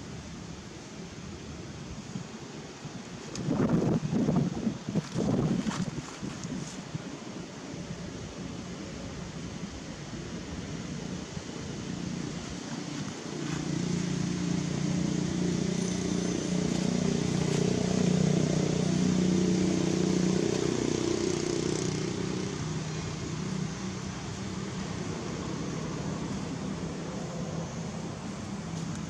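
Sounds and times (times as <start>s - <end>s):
vehicle engine passing by: 12.9s - 28.1s.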